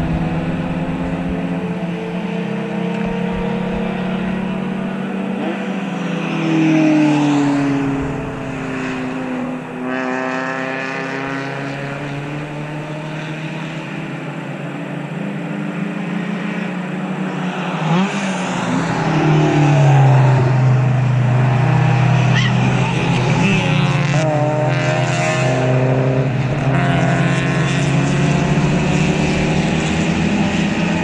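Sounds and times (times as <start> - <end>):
racing car engines passing: 0.0 - 31.0.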